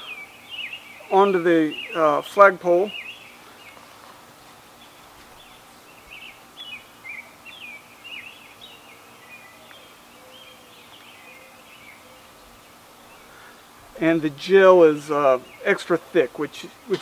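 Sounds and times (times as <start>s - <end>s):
small bird chirping: 0.0s - 13.6s
faint background hum: 0.0s - 17.0s.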